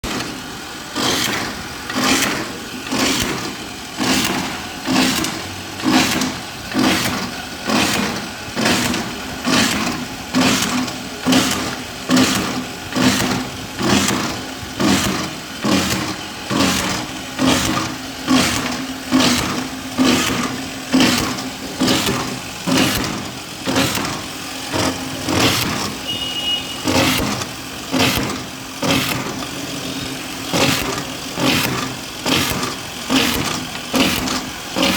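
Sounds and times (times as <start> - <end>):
hydraulic drilling machine running: 0.0 - 34.9
sharp noisy bursts: 0.0 - 34.9.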